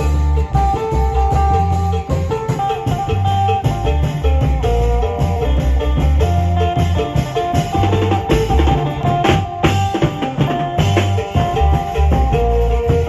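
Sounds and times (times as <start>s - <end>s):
low bass line: 0.0s - 13.0s
plucked lute melody: 0.0s - 13.0s.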